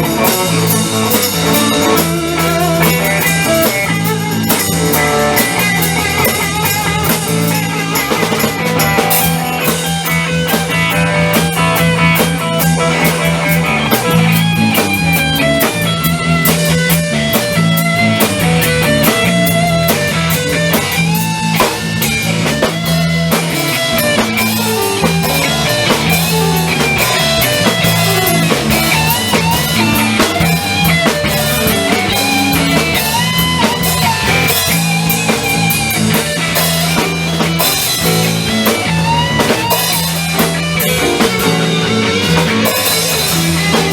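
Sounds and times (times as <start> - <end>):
rock music with electric guitar: 0.0 - 43.9.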